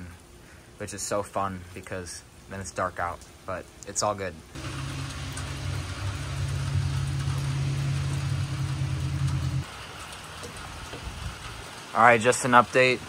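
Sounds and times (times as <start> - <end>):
low mechanical hum: 4.4 - 9.7.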